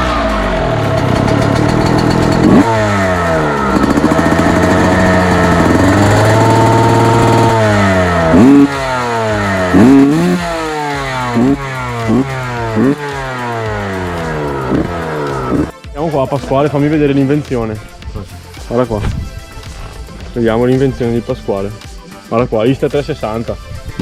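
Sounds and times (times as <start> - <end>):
motorcycle engine revving: 0.0 - 15.8
motorcycle throttle blips: 0.8 - 15.7.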